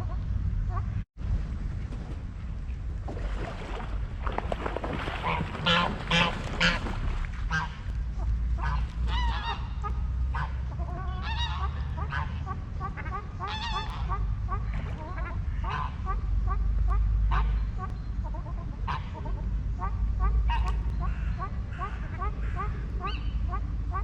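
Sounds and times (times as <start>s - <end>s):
low rumble: 0.0s - 24.0s
geese honking: 5.2s - 24.0s.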